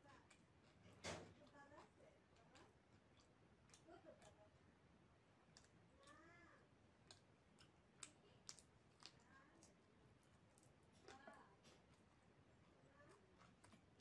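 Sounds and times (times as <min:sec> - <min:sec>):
person chewing with mouth clicks: 0:02.4 - 0:04.4, 0:05.5 - 0:06.2, 0:06.9 - 0:14.0.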